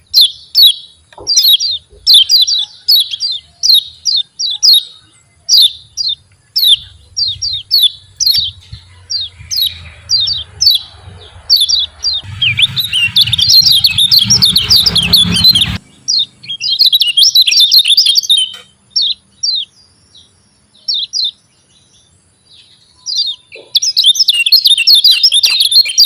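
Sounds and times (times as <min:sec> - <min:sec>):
bird chip calls: 0:00.0 - 0:19.7, 0:23.0 - 0:26.0
low hum: 0:05.9 - 0:16.8.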